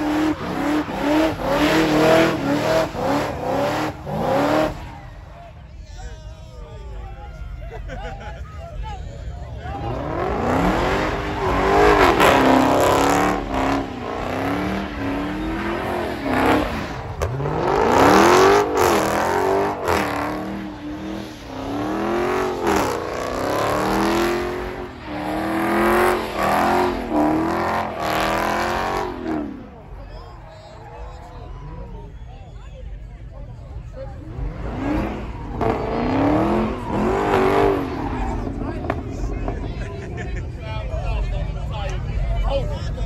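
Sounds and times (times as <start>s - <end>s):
car engine revving: 0.0s - 5.6s, 9.6s - 31.9s, 33.7s - 40.2s.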